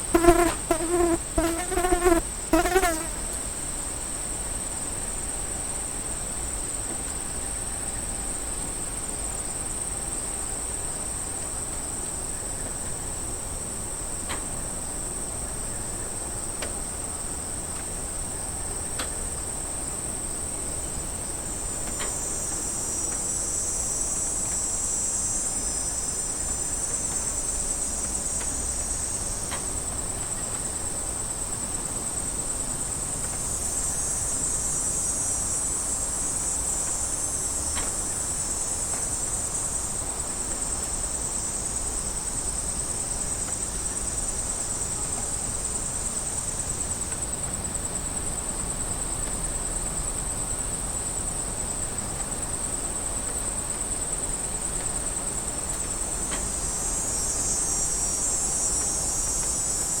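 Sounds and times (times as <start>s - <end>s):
cicadas buzzing: 0.0s - 4.1s, 20.0s - 60.0s.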